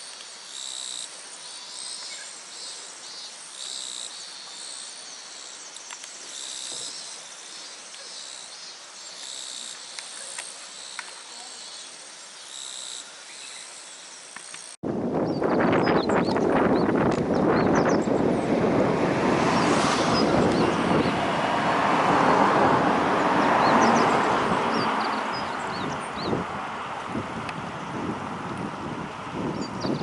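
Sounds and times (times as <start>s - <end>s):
insects trilling in chorus: 0.0s - 14.8s.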